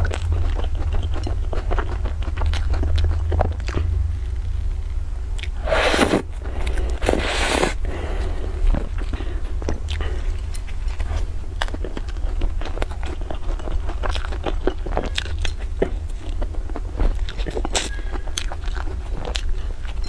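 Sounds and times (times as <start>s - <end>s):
crunchy chewing: 0.0s - 20.0s
steady low hum: 0.0s - 20.0s.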